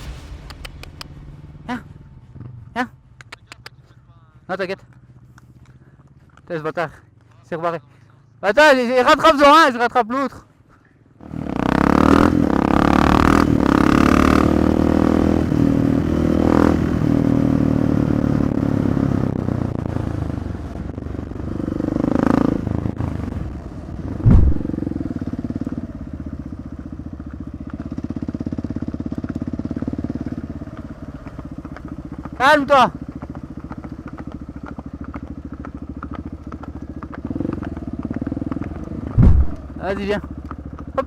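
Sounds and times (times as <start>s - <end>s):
heavy thump: 0.0s - 4.1s, 24.2s - 24.9s, 39.1s - 39.8s
motorcycle engine revving: 11.2s - 41.0s.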